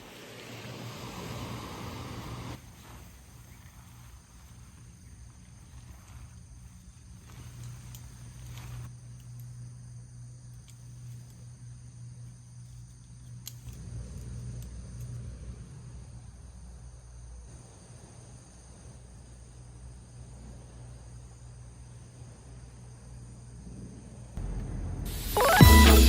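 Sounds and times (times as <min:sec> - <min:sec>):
crickets chirping: 0:00.0 - 0:26.0
low steady hum: 0:00.4 - 0:26.0
faint clicks: 0:12.2 - 0:15.2.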